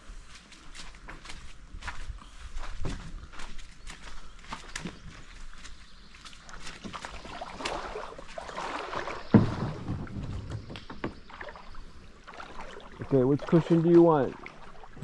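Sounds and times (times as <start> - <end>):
loud thump: 9.3 - 10.6.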